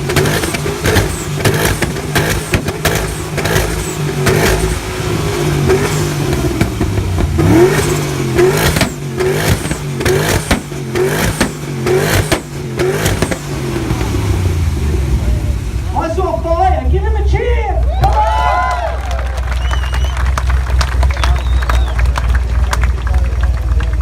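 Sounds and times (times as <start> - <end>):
car engine revving: 0.0 - 17.2
exhaust cracks: 0.0 - 24.0.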